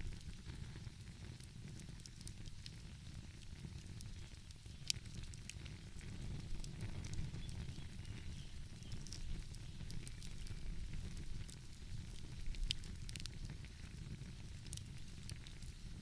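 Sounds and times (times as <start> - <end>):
low steady rumble: 0.0 - 16.0
wood fire crackling and popping: 0.0 - 16.0.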